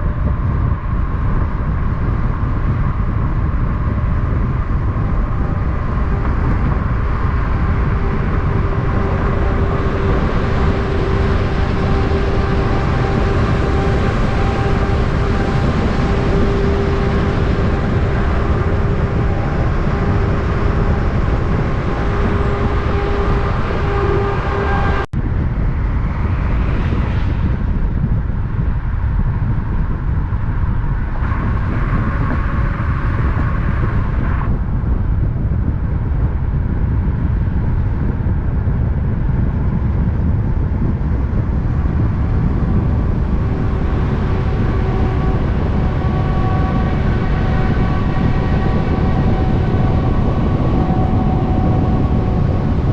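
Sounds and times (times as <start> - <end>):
steady whining tones: 0.0 - 52.9
heavy truck traffic: 4.3 - 25.2, 41.1 - 52.9.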